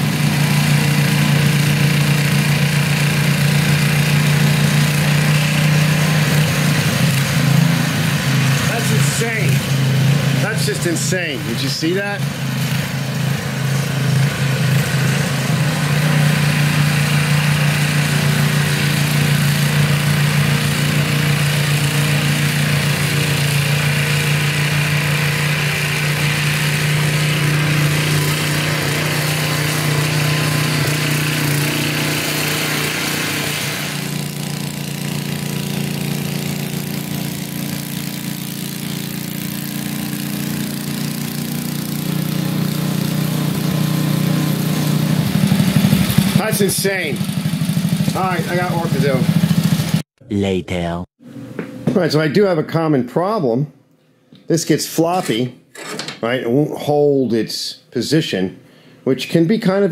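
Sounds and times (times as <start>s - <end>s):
snowblower engine running: 0.0s - 50.0s.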